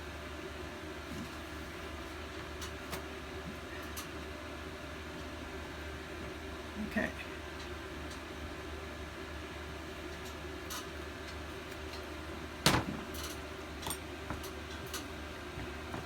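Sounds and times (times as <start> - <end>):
steady low hum: 0.0 - 16.0
clicks and knocks of tools: 10.1 - 12.0, 13.1 - 15.1.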